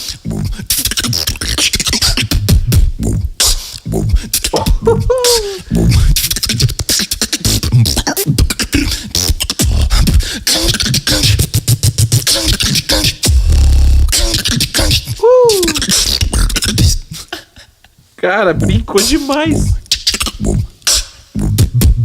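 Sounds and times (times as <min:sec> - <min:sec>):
beatboxing mouth percussion: 0:00.0 - 0:17.7, 0:18.5 - 0:22.0
vocal glide falling in pitch: 0:04.5 - 0:05.9, 0:15.1 - 0:16.1.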